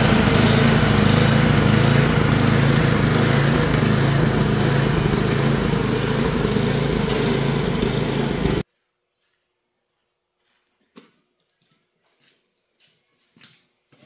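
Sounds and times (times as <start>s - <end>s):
snowblower engine running: 0.0s - 8.6s.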